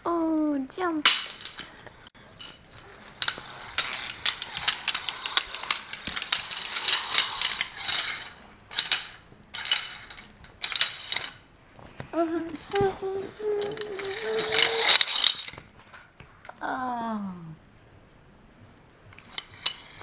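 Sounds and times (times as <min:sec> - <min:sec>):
plastic toy truck rattling: 0:00.9 - 0:16.0, 0:19.2 - 0:20.0.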